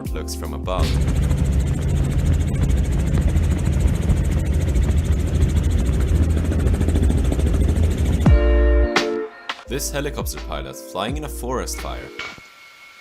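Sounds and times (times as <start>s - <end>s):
helicopter rotor and engine: 0.8s - 8.4s.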